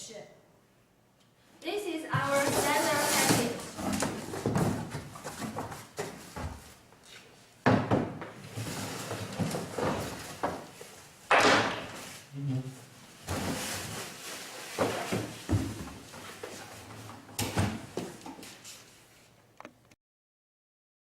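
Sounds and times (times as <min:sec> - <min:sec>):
knocks and thuds of objects: 0:02.2 - 0:06.6, 0:07.6 - 0:08.4, 0:11.3 - 0:12.1, 0:14.8 - 0:16.0
scraping and rustling: 0:02.2 - 0:07.3.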